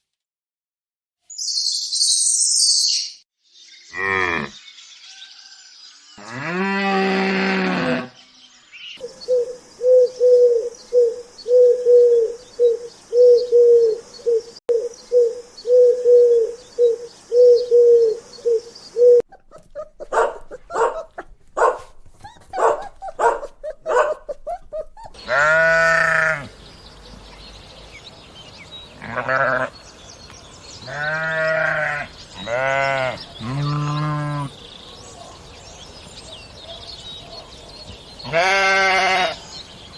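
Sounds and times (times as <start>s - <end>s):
goat bleating: 25.2s - 26.5s, 29.0s - 29.8s, 30.8s - 34.5s, 38.2s - 39.4s.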